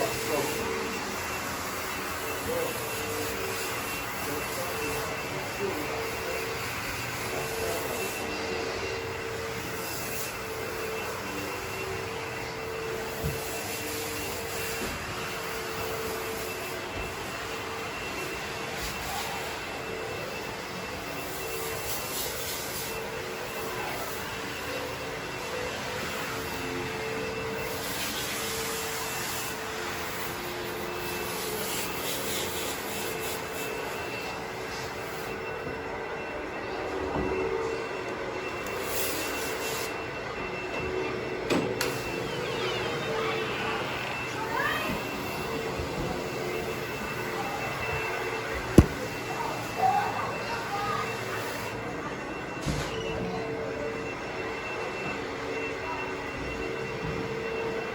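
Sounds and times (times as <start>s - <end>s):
carpet cleaner motor whine: 0.0s - 57.9s.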